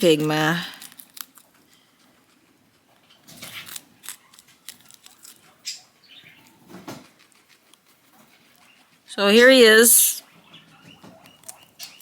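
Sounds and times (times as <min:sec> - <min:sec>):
guinea pig rustling in cage: 0:00.0 - 0:09.2.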